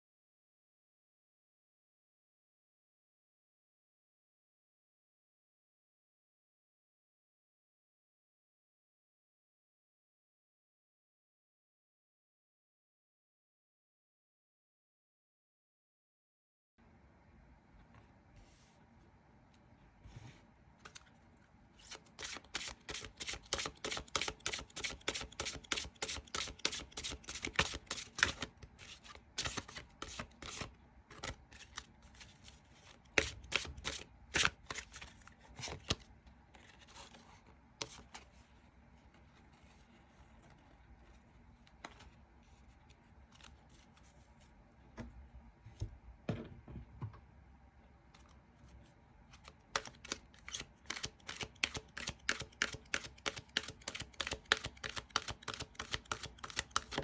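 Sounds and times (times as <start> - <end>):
cards being shuffled: 21.8 - 38.3, 49.4 - 57.0.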